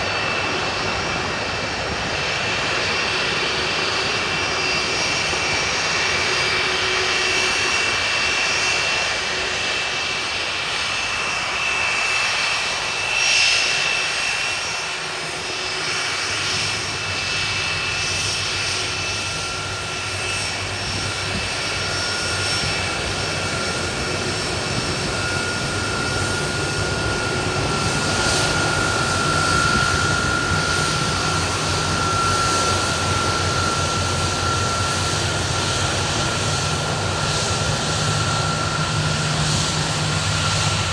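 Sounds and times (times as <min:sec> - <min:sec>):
jet engines rushing and whining: 0:00.0 - 0:40.9
low whine: 0:15.0 - 0:40.9.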